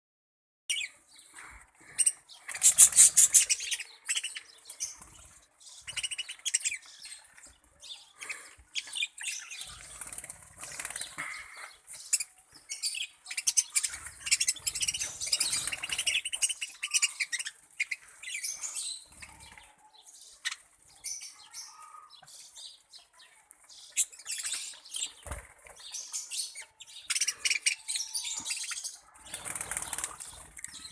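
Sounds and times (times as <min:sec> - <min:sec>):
parrots chirping and calling: 0:00.7 - 0:22.4, 0:25.9 - 0:30.9
wings flapping: 0:02.5 - 0:03.6, 0:09.6 - 0:11.3, 0:13.9 - 0:16.5, 0:25.0 - 0:25.9, 0:29.2 - 0:30.8.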